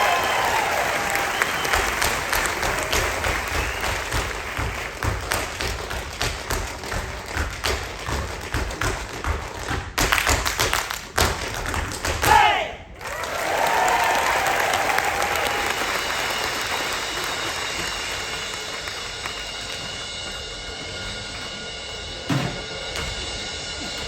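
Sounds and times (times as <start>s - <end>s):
heavy stomps: 1.1s - 12.7s, 18.5s - 24.0s.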